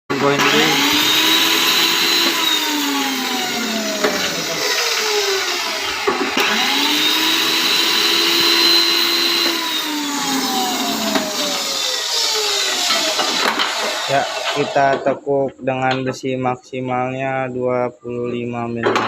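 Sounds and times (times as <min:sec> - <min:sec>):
electric motor whine: 0:00.1 - 0:15.0.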